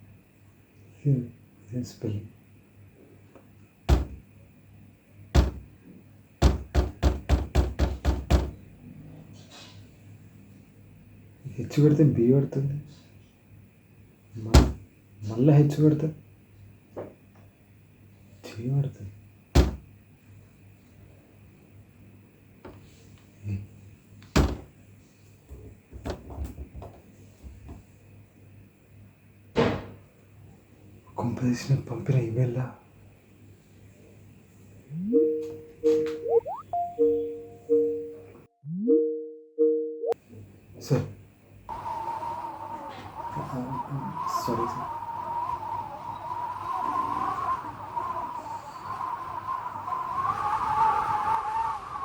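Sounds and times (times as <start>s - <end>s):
sharp thumps: 3.9s - 4.2s, 5.4s - 5.7s.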